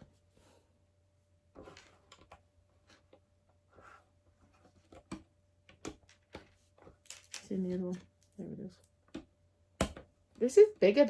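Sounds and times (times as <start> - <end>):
plastic pieces clicking: 7.0 - 8.1.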